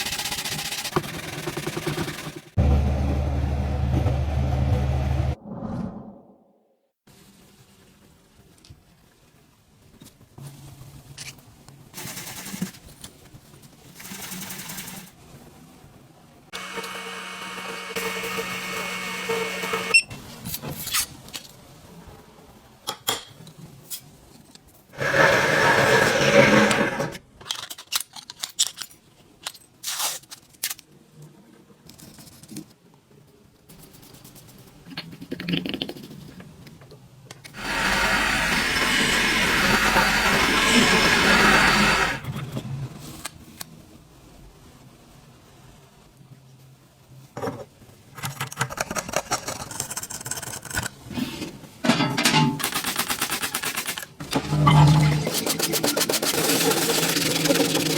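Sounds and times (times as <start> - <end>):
small tools clicking and knocking: 27.4 - 29.7
loud rough burst: 37.6 - 42.2.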